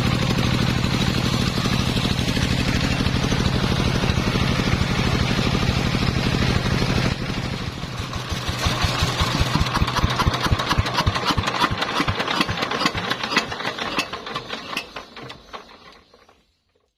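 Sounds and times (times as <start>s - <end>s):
sawmill engine running: 0.0s - 16.5s.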